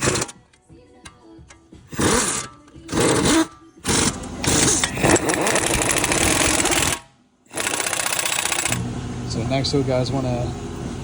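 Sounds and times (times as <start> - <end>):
cordless power tool driving bolts: 0.0 - 0.4, 1.9 - 8.8.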